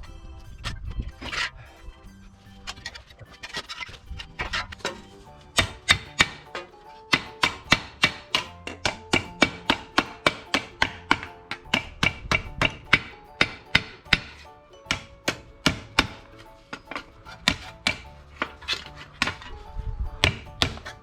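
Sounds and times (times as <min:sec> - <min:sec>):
hammer tapping steel sheet: 0:04.8 - 0:19.6.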